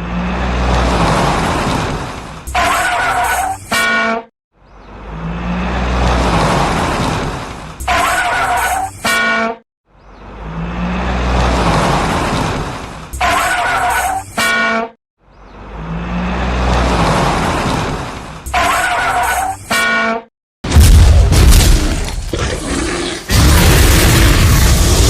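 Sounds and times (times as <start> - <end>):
cartoon engine rush: 0.0 - 3.8, 5.1 - 9.2, 10.5 - 14.6, 15.8 - 19.8.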